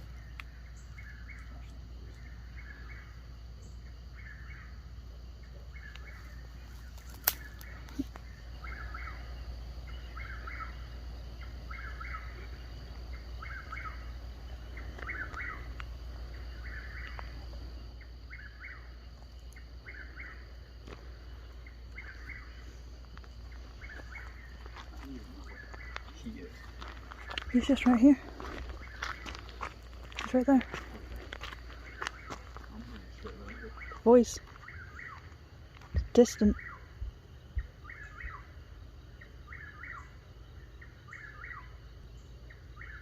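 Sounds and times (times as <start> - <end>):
low steady rumble: 0.0 - 43.0
animal chirping call: 14.8 - 15.8.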